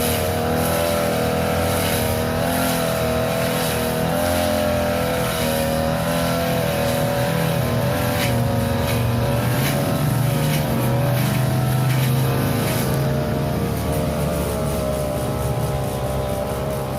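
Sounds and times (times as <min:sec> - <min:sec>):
lawn mower engine running: 0:00.0 - 0:16.9.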